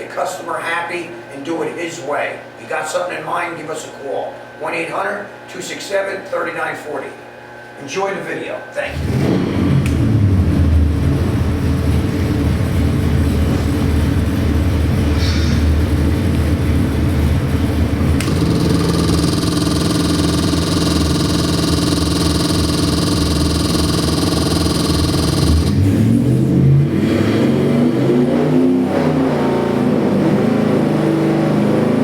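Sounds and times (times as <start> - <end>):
engine running steadily: 8.9 - 27.3.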